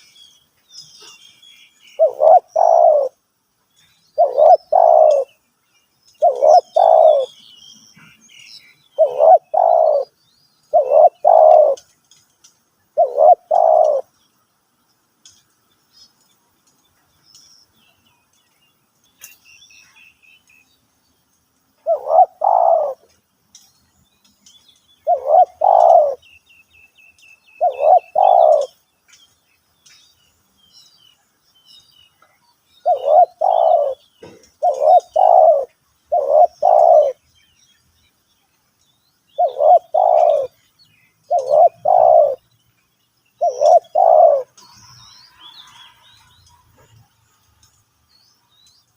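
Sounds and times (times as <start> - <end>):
small birds chirping faintly: 0.0 - 48.9
dove cooing: 2.0 - 3.2, 4.2 - 5.3, 6.2 - 7.4, 9.0 - 11.8, 13.0 - 14.1, 21.8 - 23.1, 25.0 - 26.2, 27.6 - 28.8, 32.8 - 37.2, 39.4 - 40.6, 41.3 - 42.4, 43.4 - 44.6.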